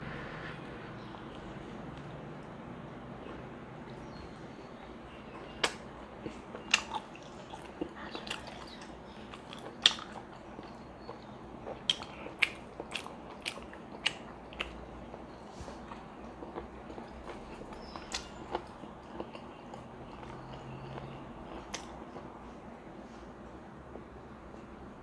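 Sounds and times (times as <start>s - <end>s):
biting and chewing food: 1.0s - 22.6s
wet mouth clicks and smacks: 21.6s - 22.0s.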